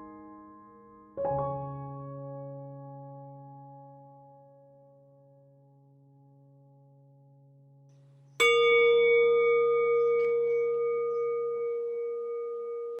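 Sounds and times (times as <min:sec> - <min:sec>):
singing bowl ringing: 0:07.9 - 0:13.0.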